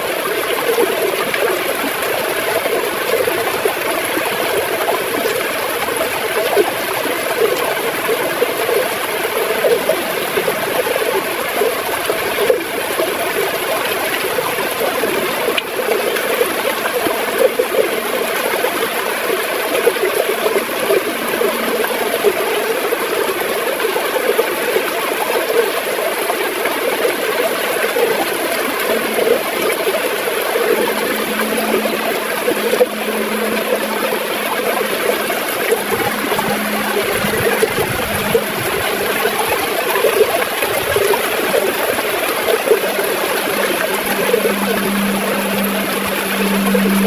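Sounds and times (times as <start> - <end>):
river water gurgling: 0.0 - 47.0.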